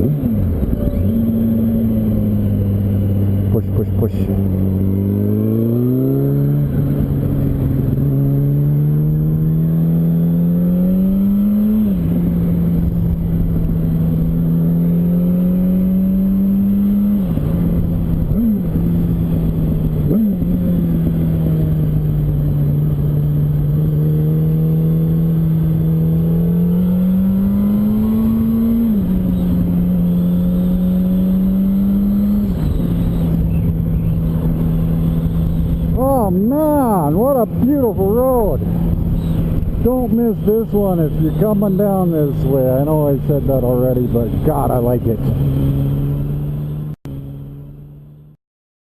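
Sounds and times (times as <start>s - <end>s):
motorcycle engine shifting gears: 0.0s - 47.7s.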